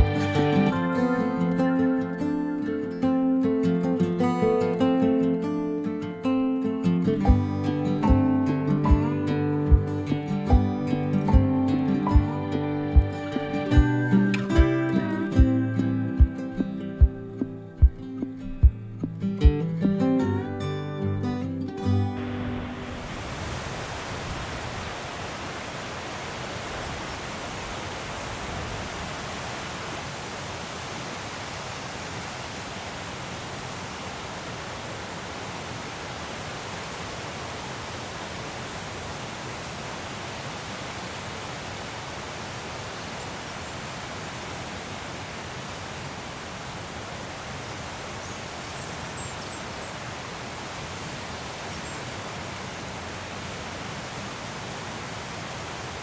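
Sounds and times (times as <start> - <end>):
waterfall rushing: 0.0 - 5.1, 22.1 - 56.0.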